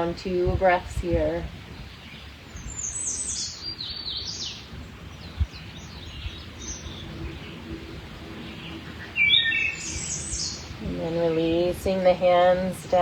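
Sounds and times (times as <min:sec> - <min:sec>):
low steady background rumble: 0:00.0 - 0:02.0, 0:09.9 - 0:13.0
birds chirping: 0:01.8 - 0:13.0.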